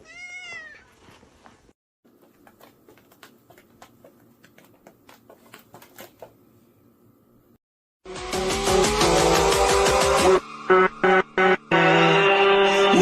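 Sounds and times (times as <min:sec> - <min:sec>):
cat meowing: 0:00.0 - 0:01.0.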